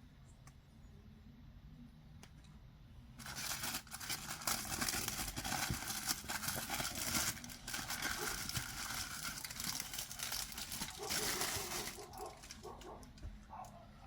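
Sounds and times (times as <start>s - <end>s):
packaging crinkling and rustling: 3.2s - 13.7s.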